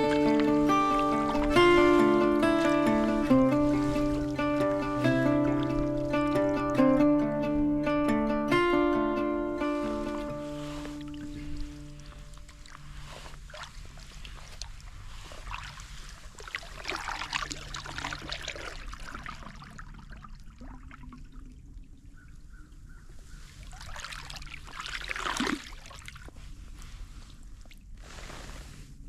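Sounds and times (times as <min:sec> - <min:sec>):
water dripping off paddle: 0:00.0 - 0:06.8, 0:09.8 - 0:22.5
kayak paddle strokes in water: 0:00.0 - 0:21.3, 0:22.2 - 0:29.0.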